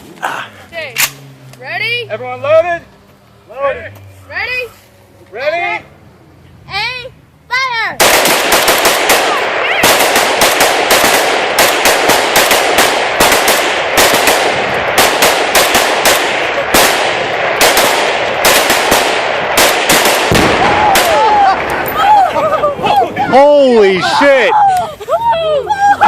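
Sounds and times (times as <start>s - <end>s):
guns firing in a rapid volley: 8.0s - 21.8s.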